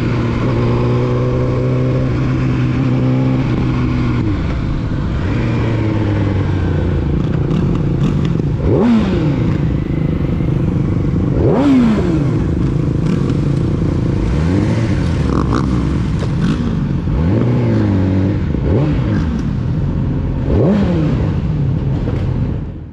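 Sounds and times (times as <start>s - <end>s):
motorcycle engine revving: 0.0s - 22.8s.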